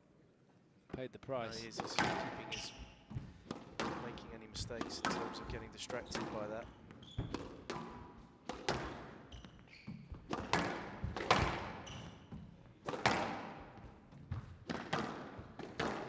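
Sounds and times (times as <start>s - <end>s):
shoe squeaks: 1.6s - 3.1s, 6.7s - 7.7s, 9.2s - 10.4s, 11.7s - 12.4s
squash ball impacts: 1.8s - 16.0s.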